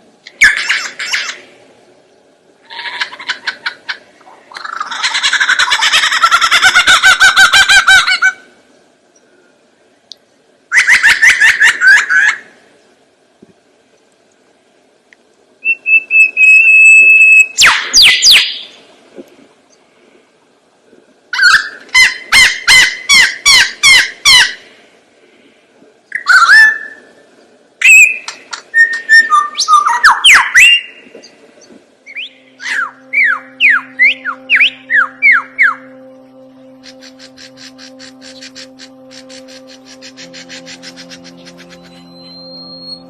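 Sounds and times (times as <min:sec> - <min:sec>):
songbird whistling: 0:15.6 - 0:18.8, 0:26.1 - 0:27.2, 0:27.8 - 0:31.0, 0:31.6 - 0:43.0.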